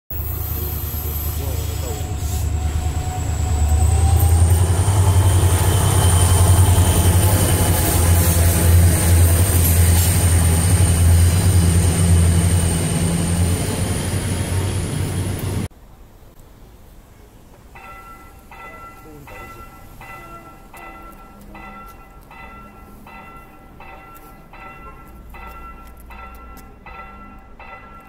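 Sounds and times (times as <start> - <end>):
diesel train engine rumble: 0.1 - 16.3.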